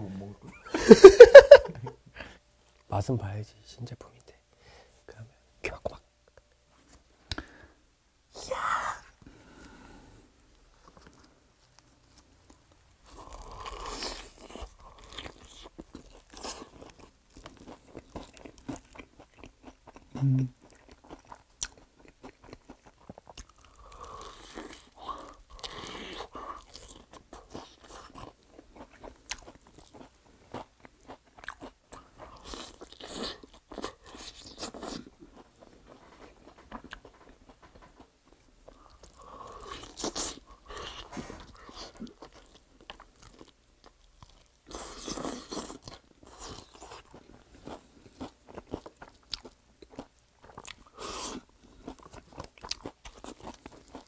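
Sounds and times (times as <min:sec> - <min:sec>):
crispy food crunching: 0:10.8 - 0:54.0
wet chewing: 0:12.5 - 0:38.0, 0:38.7 - 0:54.0.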